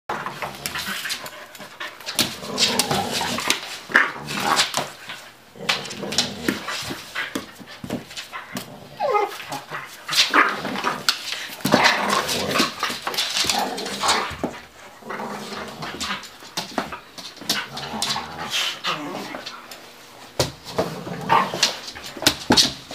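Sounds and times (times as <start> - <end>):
dog whining: 9.0 - 9.7.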